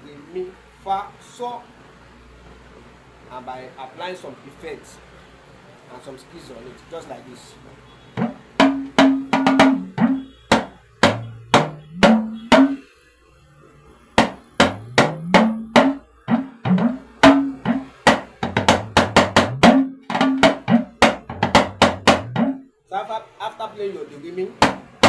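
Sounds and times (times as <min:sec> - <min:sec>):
talking drum pitched strokes: 0:08.2 - 0:12.9, 0:14.2 - 0:22.6.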